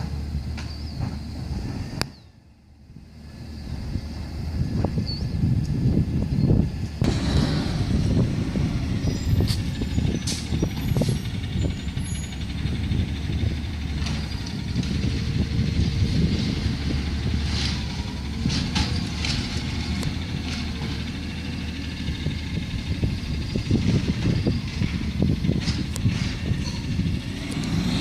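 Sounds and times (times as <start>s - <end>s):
truck engine rumbling: 0.0s - 28.0s
clanks and knocks: 23.9s - 27.0s.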